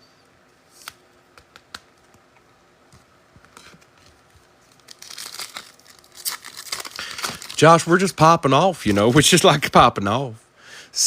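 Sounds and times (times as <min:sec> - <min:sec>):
cards clicking and tapping: 0:00.8 - 0:02.3
card pack wrapper crinkling: 0:03.6 - 0:09.6.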